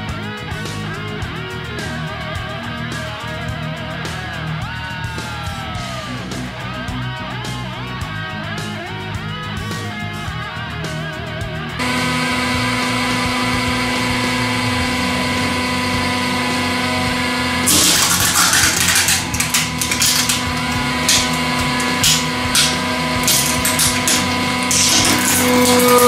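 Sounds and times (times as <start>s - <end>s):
hydraulic press humming: 11.8s - 26.0s
plastic cup cracking: 17.6s - 26.0s
plastic snapping and crackling: 17.7s - 26.0s.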